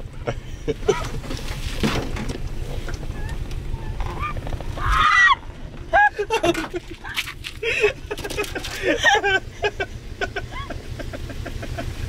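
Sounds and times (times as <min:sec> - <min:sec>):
car engine labouring uphill: 0:00.0 - 0:12.0.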